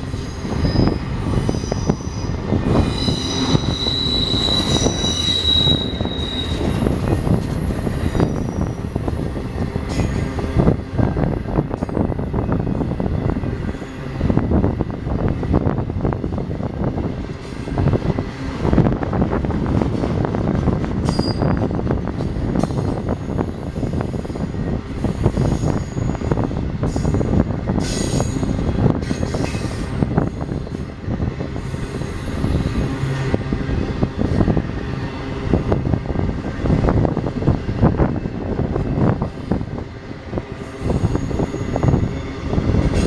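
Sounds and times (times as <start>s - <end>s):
train wheels clattering on rail: 0.0s - 43.0s
high wheel squeals: 0.2s - 9.0s.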